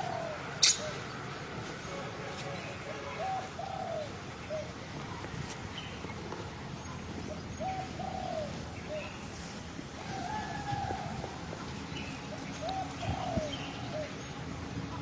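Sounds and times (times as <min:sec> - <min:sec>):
bird cooing: 0:00.0 - 0:01.7, 0:02.8 - 0:05.3, 0:07.1 - 0:11.5, 0:12.1 - 0:14.4.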